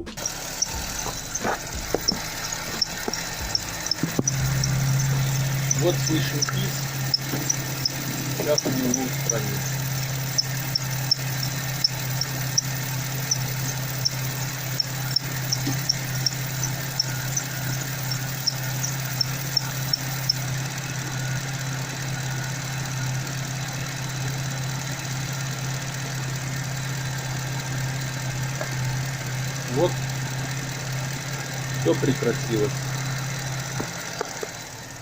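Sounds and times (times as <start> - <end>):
belt chirping squeaks: 0.0 - 34.7
car engine idling: 0.0 - 35.0.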